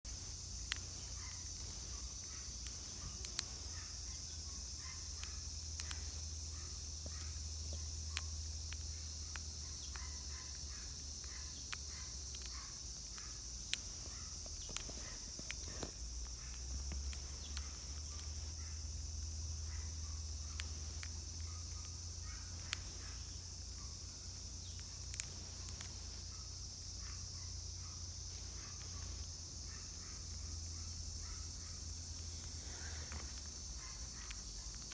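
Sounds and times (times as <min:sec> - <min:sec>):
insects singing: 0:00.0 - 0:34.9
sharp clicks: 0:00.1 - 0:30.5, 0:31.1 - 0:34.9.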